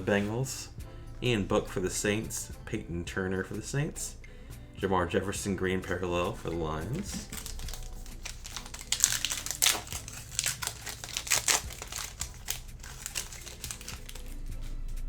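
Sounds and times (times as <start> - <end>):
wrapper tearing and crinkling: 7.0 - 14.9.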